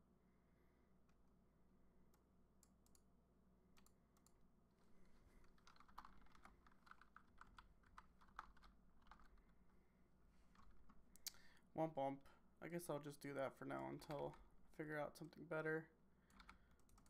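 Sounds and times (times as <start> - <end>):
faint keyboard typing: 2.0 - 3.1, 3.7 - 4.4, 5.1 - 9.7, 10.4 - 11.7, 13.7 - 14.5, 16.2 - 17.0.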